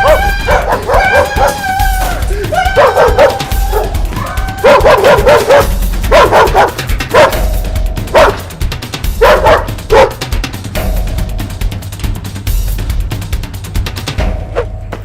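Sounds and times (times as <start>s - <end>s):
dog barking: 0.0s - 1.7s, 2.8s - 4.0s, 4.6s - 8.5s, 9.2s - 10.2s
background music: 0.0s - 15.0s.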